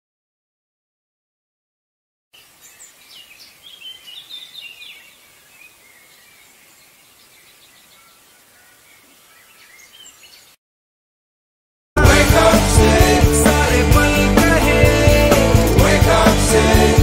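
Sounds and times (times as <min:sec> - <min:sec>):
outdoor background noise: 0:02.4 - 0:10.6
small birds chirping: 0:02.4 - 0:10.6.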